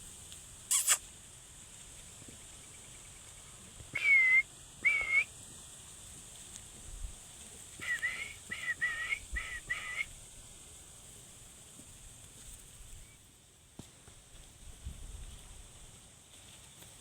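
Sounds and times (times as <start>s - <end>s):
parrot whistling: 4.0s - 5.3s, 7.8s - 10.1s.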